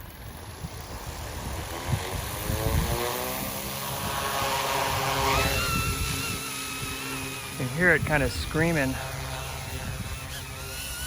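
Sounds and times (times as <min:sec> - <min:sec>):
helicopter motor and rotor whine: 0:00.0 - 0:11.0.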